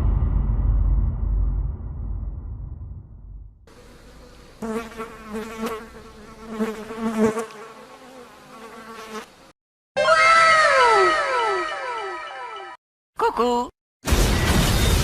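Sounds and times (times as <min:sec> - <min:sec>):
insect buzzing: 0:03.7 - 0:09.6.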